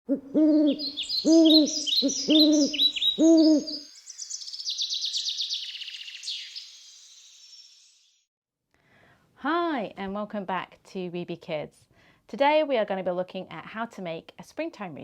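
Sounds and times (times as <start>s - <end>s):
low hooting calls: 0.1s - 3.8s
songbirds chirping: 0.2s - 8.2s
fast high-pitched bird trill: 0.8s - 8.2s.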